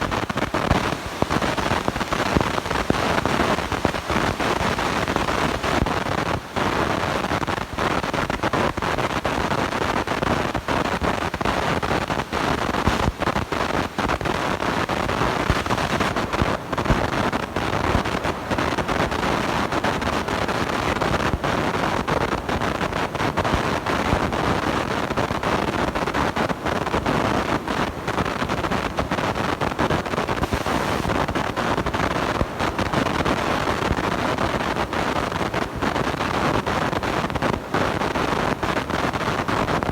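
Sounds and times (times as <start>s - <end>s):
distorted microphone noise: 0.0s - 39.9s.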